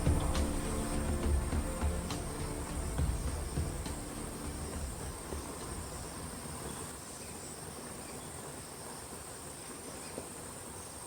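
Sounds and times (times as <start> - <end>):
low rumble: 0.0 - 6.3
insect chorus: 0.0 - 11.0.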